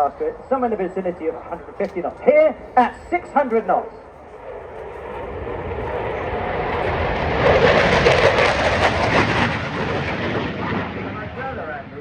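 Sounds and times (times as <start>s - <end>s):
jet fly-by roar: 0.0s - 12.0s.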